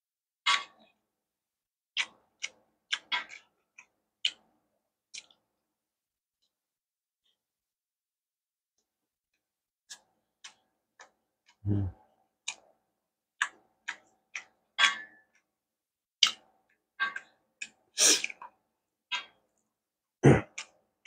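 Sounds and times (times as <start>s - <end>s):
wet chewing mouth clicks: 2.0s - 4.5s, 17.6s - 18.5s.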